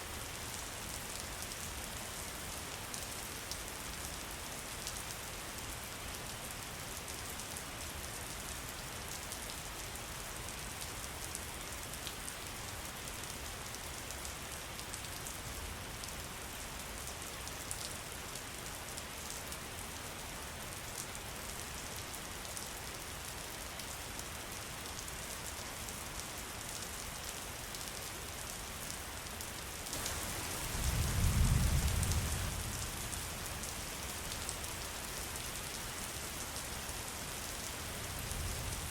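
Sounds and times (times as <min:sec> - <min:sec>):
steady rain: 0:00.0 - 0:38.9
thunder rumble: 0:30.6 - 0:32.7.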